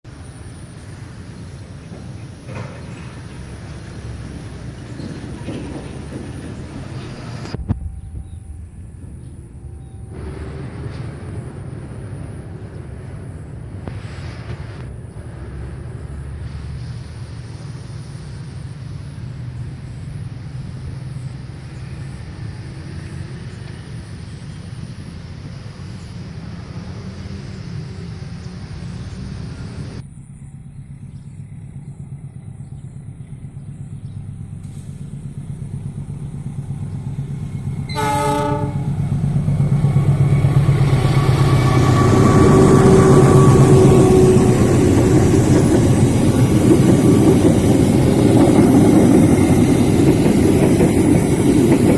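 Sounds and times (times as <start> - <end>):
locomotive rumble: 0.0 - 51.9
train horn blast: 37.9 - 39.5, 40.5 - 45.2.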